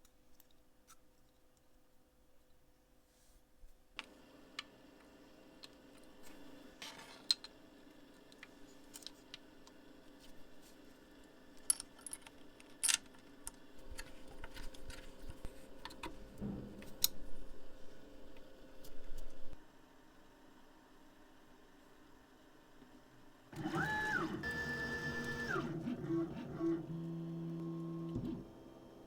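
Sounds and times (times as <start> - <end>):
small metal parts clicking: 11.6 - 13.6.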